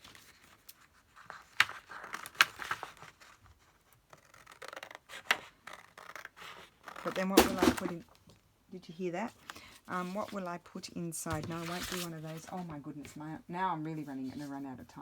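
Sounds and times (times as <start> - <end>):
paper rustling: 0.0 - 8.0, 9.4 - 10.5, 11.2 - 13.2.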